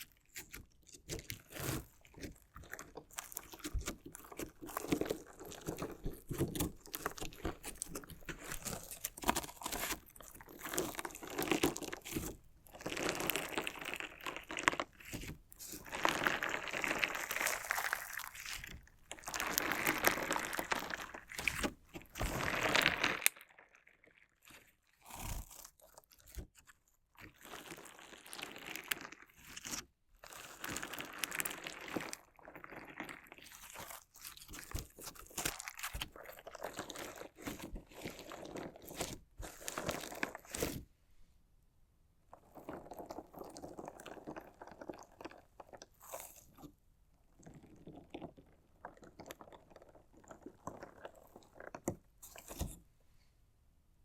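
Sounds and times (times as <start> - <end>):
crunchy slime crackling: 0.0 - 26.6, 27.2 - 40.9.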